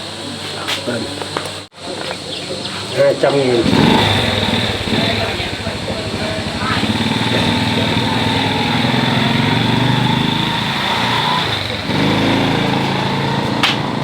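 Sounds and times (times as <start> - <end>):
small engine running: 2.8 - 14.0.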